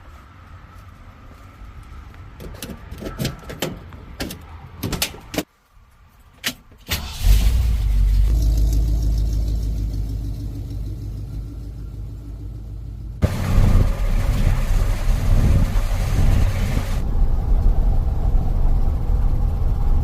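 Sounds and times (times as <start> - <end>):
sharp clicks and knocks: 2.4 - 5.5
car engine starting and idling: 6.8 - 20.0.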